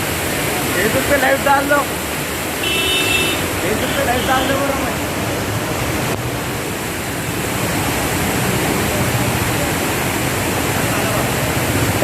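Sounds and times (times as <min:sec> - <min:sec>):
heavy rain: 0:00.0 - 0:12.0
rushing water: 0:00.0 - 0:12.0.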